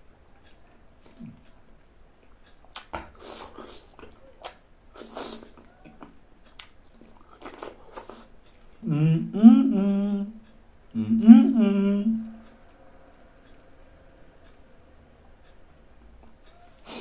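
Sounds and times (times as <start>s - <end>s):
chewing and lip-smacking on fruit: 0.3s - 8.9s.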